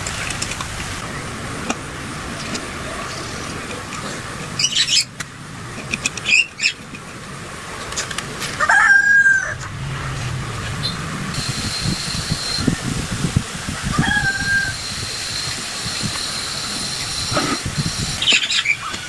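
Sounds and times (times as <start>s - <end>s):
rooster crowing: 8.6s - 11.6s, 13.8s - 14.8s.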